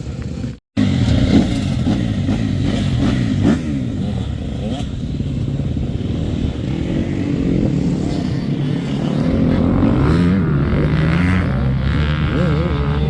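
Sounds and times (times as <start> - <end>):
motocross bikes revving: 0.0 - 13.0.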